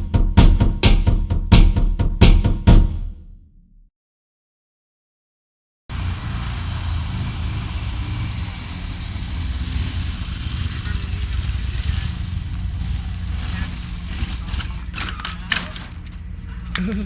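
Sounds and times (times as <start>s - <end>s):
vehicle engine and road noise: 5.9s - 16.9s.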